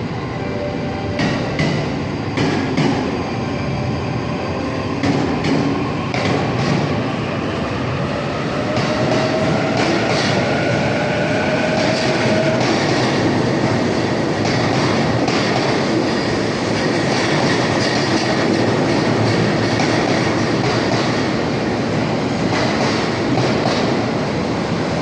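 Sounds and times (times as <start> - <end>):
train rumble: 0.0 - 25.0
train wheels clacking over rails: 1.2 - 3.1, 5.0 - 7.0, 8.6 - 24.2.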